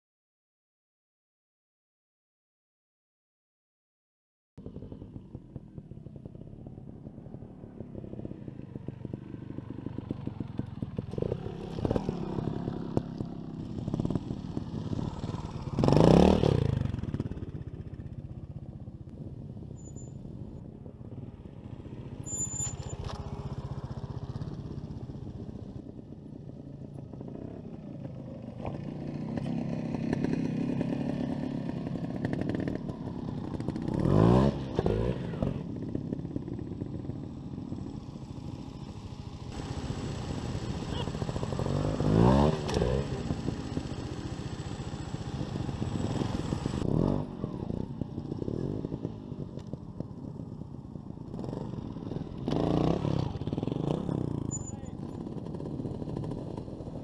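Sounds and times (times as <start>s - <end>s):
motorcycle engine idling and revving: 4.6s - 57.0s.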